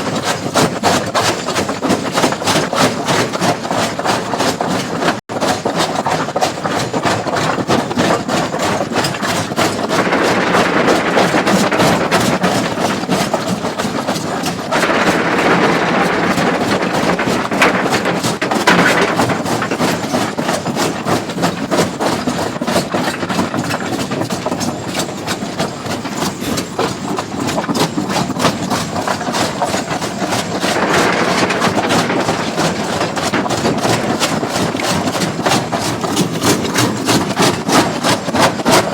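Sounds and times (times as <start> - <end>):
excavator diesel engine: 30.0 - 35.4.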